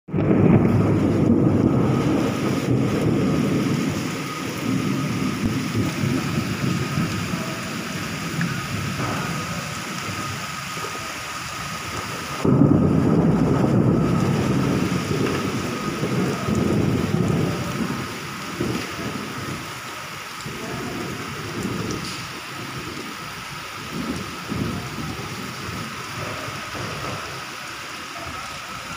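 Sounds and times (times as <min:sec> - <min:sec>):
low rumble: 0:00.1 - 0:10.8
rain falling: 0:00.1 - 0:28.9.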